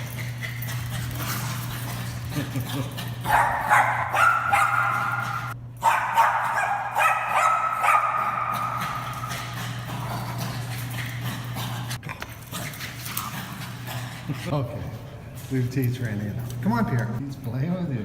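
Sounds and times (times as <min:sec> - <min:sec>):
steady low hum: 0:00.0 - 0:18.0
dog barking and yapping: 0:03.2 - 0:09.5.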